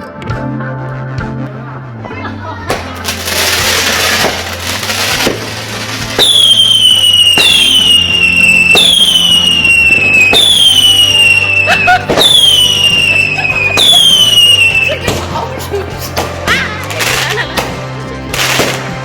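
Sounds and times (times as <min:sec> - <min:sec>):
fireworks crackling burst: 0:02.7 - 0:15.4, 0:16.8 - 0:19.0
whistling fireworks: 0:03.1 - 0:15.0.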